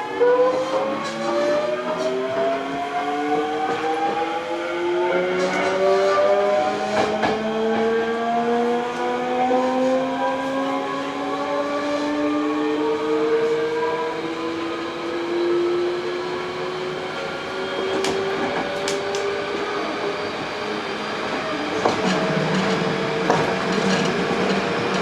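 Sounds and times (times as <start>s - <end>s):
train motor whine: 0.0s - 25.0s
train running rumble: 8.9s - 25.0s.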